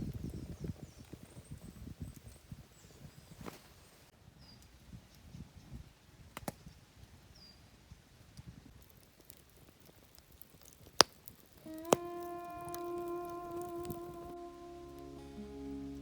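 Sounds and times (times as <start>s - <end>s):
small birds chirping: 0.0s - 5.8s, 6.5s - 8.0s.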